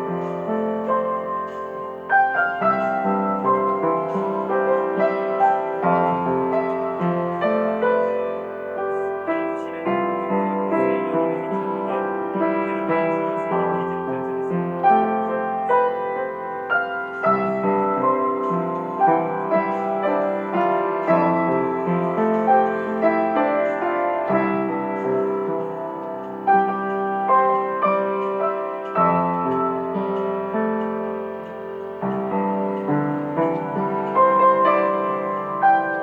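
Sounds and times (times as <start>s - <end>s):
slow gentle piano piece: 0.0s - 36.0s.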